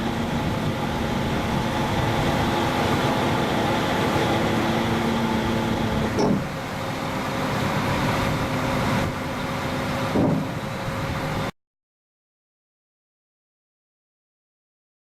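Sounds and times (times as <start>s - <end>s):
truck engine running: 0.0s - 11.5s.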